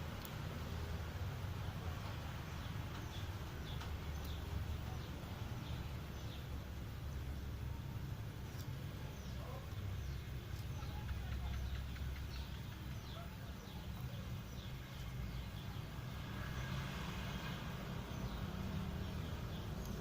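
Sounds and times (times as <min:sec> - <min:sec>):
birds chirping: 0:00.2 - 0:20.0.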